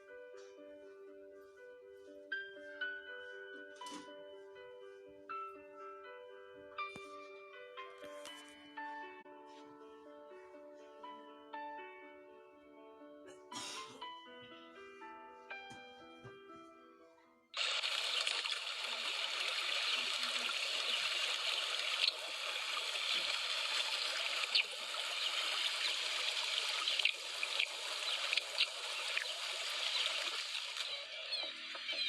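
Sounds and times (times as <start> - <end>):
running trickling water: 17.6 - 32.0.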